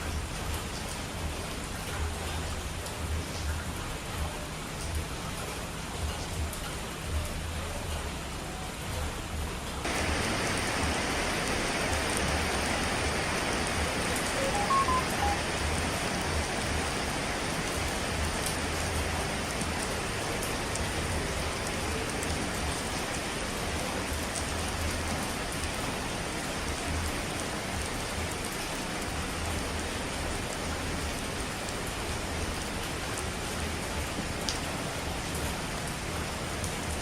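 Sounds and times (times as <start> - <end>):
hiss of falling water: 9.8 - 32.1
short beep-like tones: 14.2 - 15.5.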